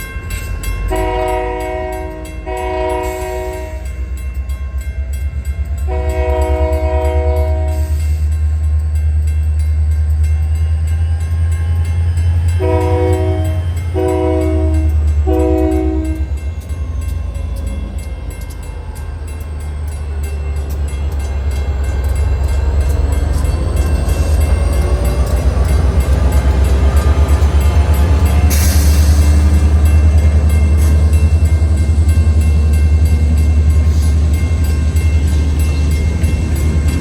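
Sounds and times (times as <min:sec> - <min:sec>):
locomotive air horn blasts: 0:00.9 - 0:04.0, 0:05.9 - 0:08.0, 0:12.6 - 0:16.4.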